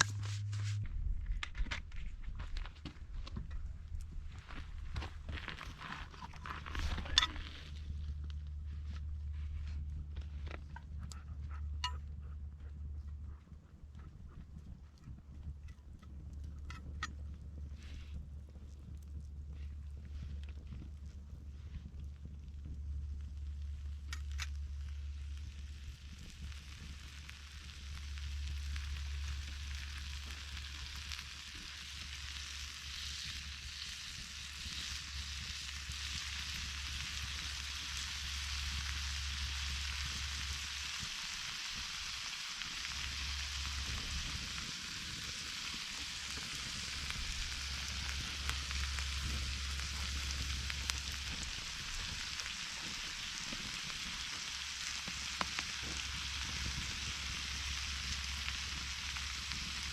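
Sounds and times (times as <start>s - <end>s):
food sizzling in a pan: 24.2s - 59.9s.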